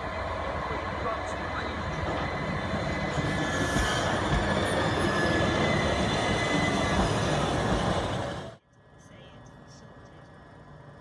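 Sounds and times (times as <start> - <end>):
train wheels rumbling on rail: 0.0 - 8.6.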